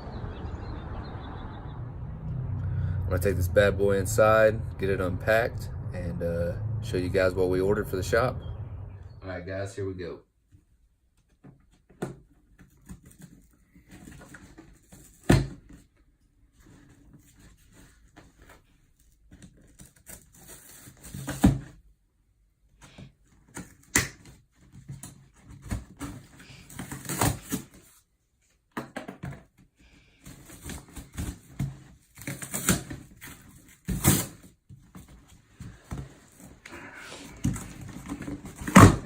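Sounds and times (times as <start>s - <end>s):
cardboard scraping and rustling: 30.1s - 36.6s, 37.2s - 39.0s.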